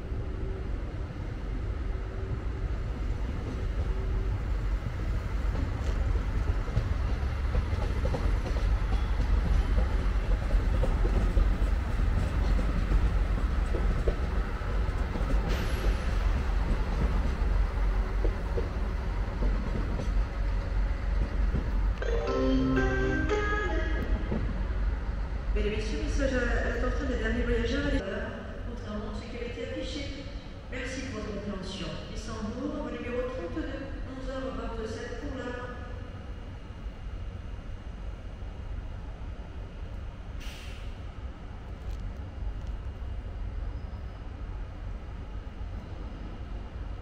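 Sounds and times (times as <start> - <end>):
train rumbling past: 0.0 - 29.4.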